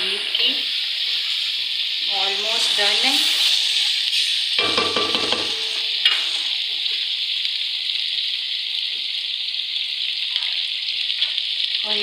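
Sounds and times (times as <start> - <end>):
gravy sizzling in a pan: 0.0 - 12.0.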